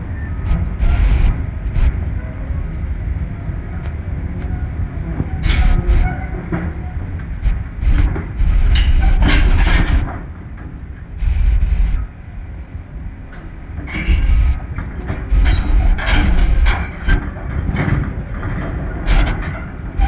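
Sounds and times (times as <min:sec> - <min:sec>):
metallic clanks and squeals: 0:05.3 - 0:10.1, 0:13.9 - 0:17.2, 0:18.6 - 0:19.8.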